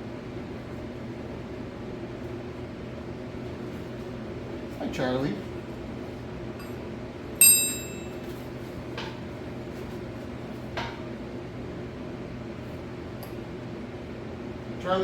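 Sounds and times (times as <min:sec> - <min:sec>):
steady low hum: 0:00.0 - 0:09.6
metal tools clinking: 0:07.4 - 0:08.2.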